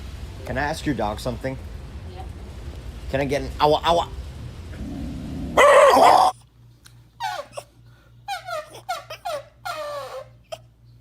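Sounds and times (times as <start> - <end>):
dog howling: 5.5 - 6.4
dog whining yelps: 5.6 - 6.4, 7.2 - 7.7, 8.3 - 10.6.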